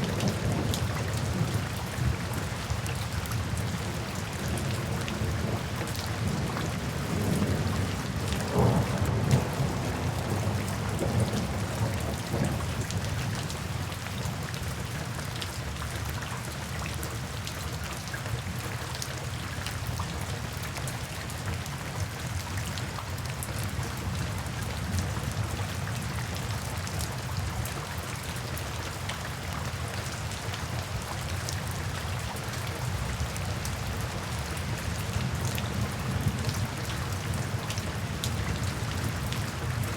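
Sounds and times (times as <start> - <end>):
steady rain: 0.0 - 39.9
low thunder rumble: 7.0 - 12.8.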